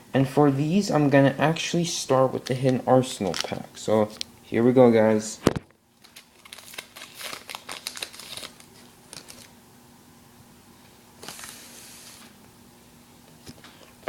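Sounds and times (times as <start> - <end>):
paper rustling: 6.0 - 9.5
foil wrapper tearing and crinkling: 6.0 - 9.6.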